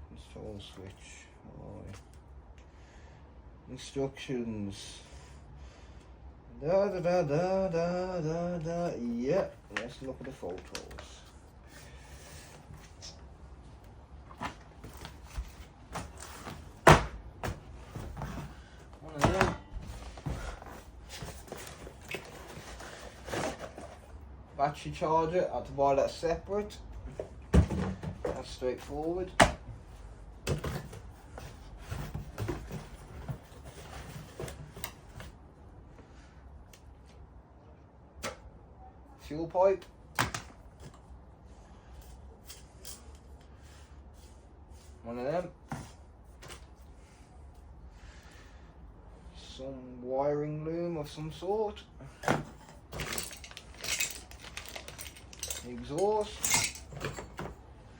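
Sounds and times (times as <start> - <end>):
light knocks of parts handled: 52.2 - 57.6
packaging rustling: 53.0 - 57.0.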